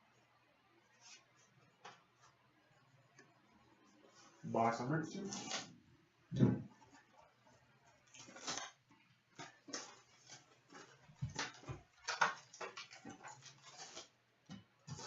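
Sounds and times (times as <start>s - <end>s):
packaging rustling and crinkling: 8.0s - 14.2s.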